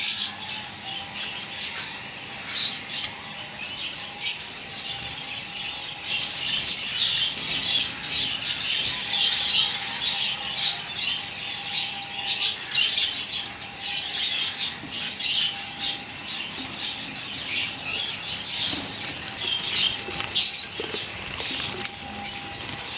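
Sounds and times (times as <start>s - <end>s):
flock of sparrows chirping: 0.0s - 22.9s.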